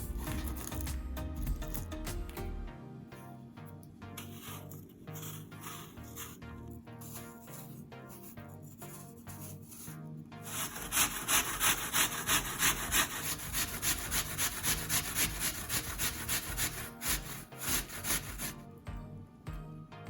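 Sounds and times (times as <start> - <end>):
apple grated on coarse grater: 10.5 - 18.6.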